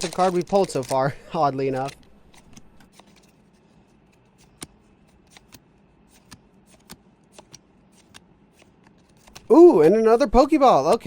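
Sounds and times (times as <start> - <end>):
trading cards flicking: 0.0 - 10.0.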